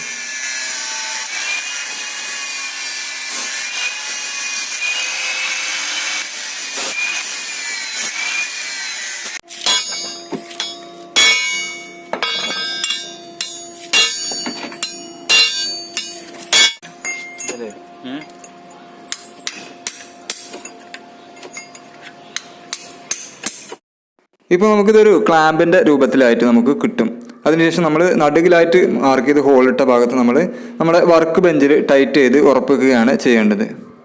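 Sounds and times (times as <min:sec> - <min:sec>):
angle grinder cutting steel: 0:00.0 - 0:17.8.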